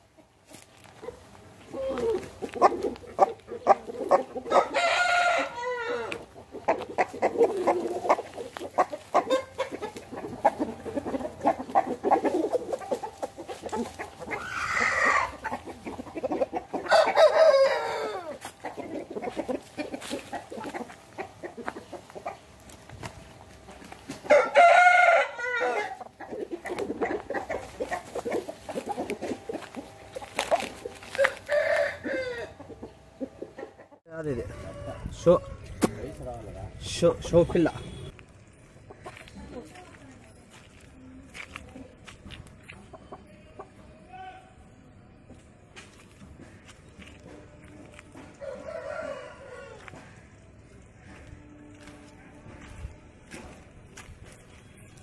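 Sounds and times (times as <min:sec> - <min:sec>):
chickens clucking: 0:00.0 - 0:55.0
roosters crowing: 0:01.6 - 0:36.5, 0:48.2 - 0:52.8.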